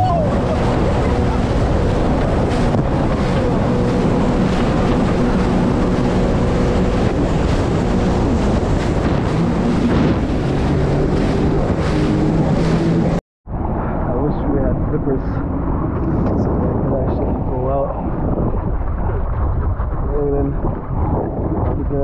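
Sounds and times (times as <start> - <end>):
jet ski engine running: 0.0 - 13.2
water rushing past hull: 0.0 - 13.2
wind buffeting microphone: 0.0 - 22.0.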